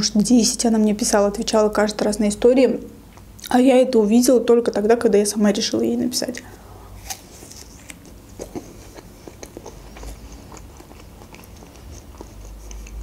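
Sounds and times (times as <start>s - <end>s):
person chewing crunchy food: 6.9s - 13.0s.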